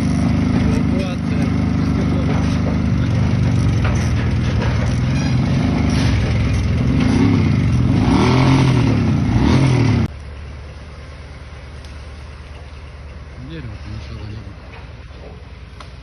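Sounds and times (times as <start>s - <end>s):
vehicle engine revving: 0.0s - 10.2s.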